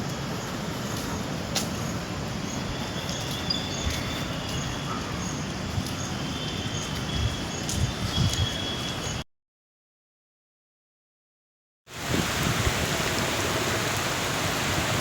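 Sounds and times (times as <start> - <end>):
rain and wind on microphone: 0.0 - 9.2, 11.9 - 15.0
faint high chirps: 2.5 - 9.2.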